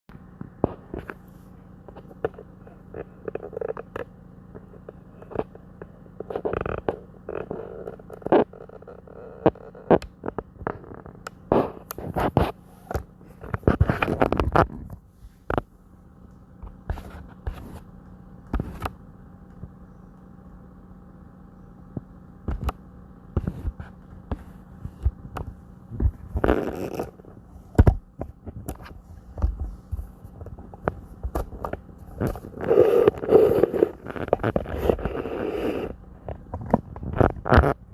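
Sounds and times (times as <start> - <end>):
rustling: 23.4 - 37.8.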